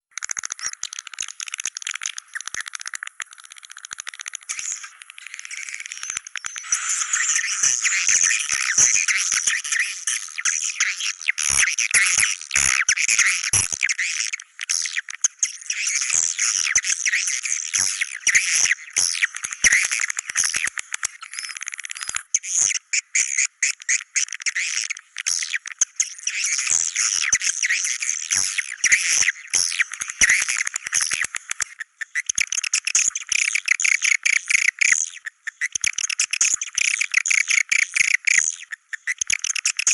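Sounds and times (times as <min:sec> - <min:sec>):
rapid clicks: 0:00.1 - 0:06.6
birds twittering: 0:04.5 - 0:11.6.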